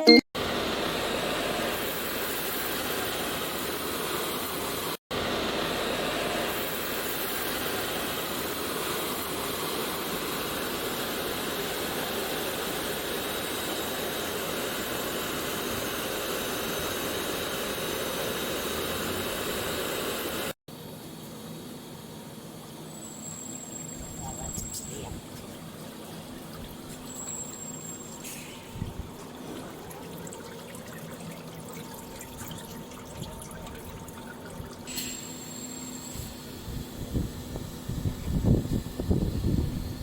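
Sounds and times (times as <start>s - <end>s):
washing machine air blower: 0.4s - 40.0s
bubbling churning water: 25.2s - 35.7s.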